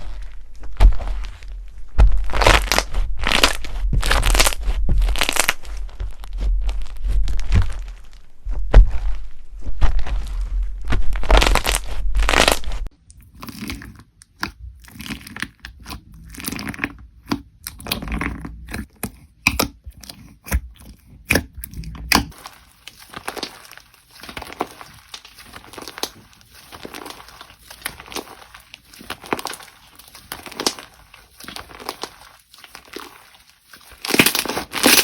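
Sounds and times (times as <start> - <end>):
slime squeezed by hand: 22.1 - 35.0.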